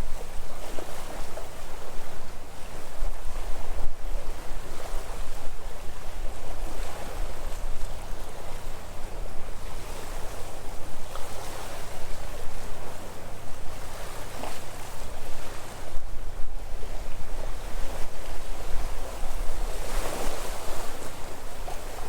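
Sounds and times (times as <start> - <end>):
sea waves washing on shore: 0.0 - 22.0.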